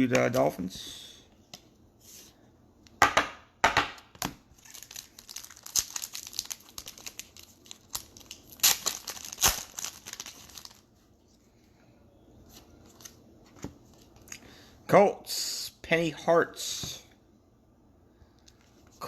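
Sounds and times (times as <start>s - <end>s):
wrapper crinkling and tearing: 4.5s - 10.9s.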